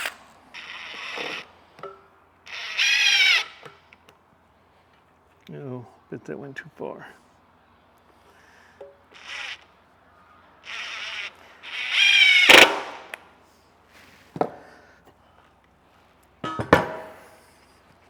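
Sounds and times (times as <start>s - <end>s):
power drill running: 0.0s - 1.5s, 2.5s - 3.6s, 9.1s - 9.6s, 10.6s - 13.2s
ringing metallic clanks: 16.4s - 17.1s.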